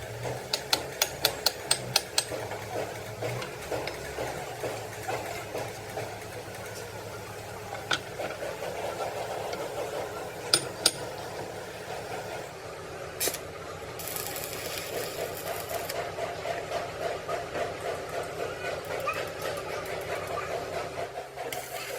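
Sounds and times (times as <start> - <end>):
steady machine hum: 0.0 - 14.6.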